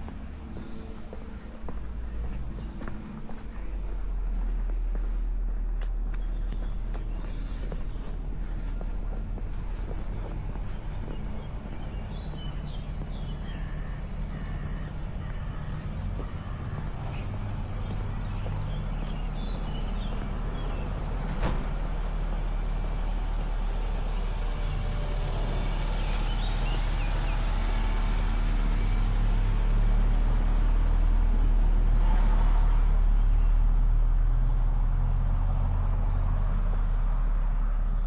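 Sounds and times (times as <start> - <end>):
road traffic rumbling: 0.0 - 38.0.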